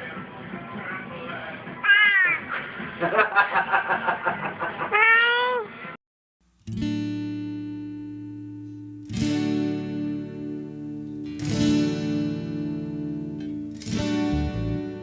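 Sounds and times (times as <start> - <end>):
acoustic guitar chords strummed: 6.5 - 15.0.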